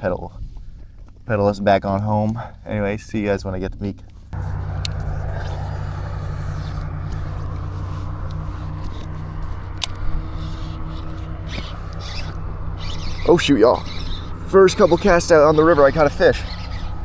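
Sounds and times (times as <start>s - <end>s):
light clicks: 4.0s - 17.0s
motor running steadily: 4.2s - 17.0s.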